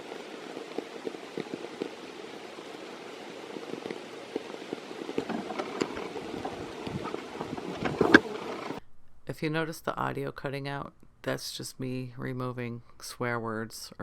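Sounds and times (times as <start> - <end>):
rain drops ticking: 0.0 - 8.8.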